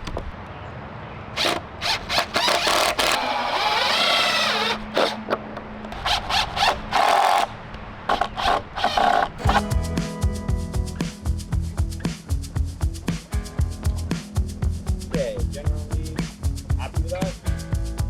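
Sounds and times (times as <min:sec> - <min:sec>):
loud scraping and rattling: 0:01.4 - 0:05.2, 0:05.9 - 0:09.6.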